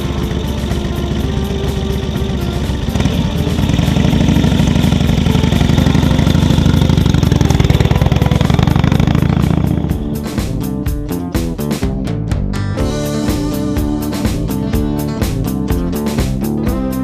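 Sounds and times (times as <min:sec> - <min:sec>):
motorcycle engine revving up: 0:00.0 - 0:11.9.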